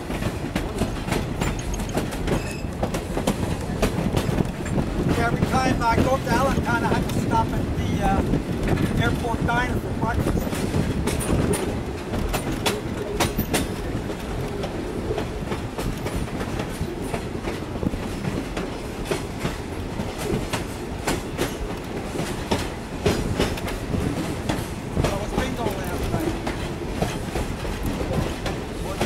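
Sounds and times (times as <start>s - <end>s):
train wheels rumbling: 0.0s - 29.0s
wheel clicks over rail joints: 0.2s - 7.2s.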